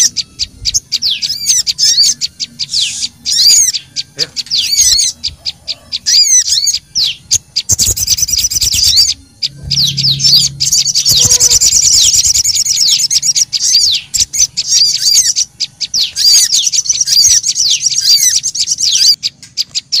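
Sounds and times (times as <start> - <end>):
songbirds chirping and trilling: 0.0 - 20.0.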